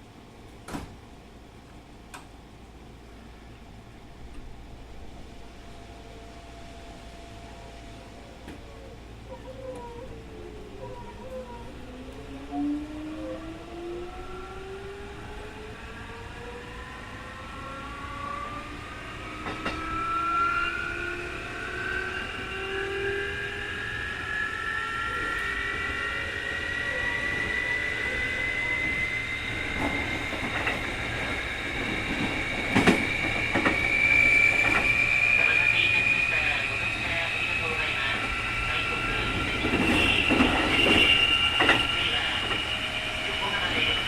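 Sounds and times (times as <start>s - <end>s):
electric train motor whine: 12.1s - 44.0s.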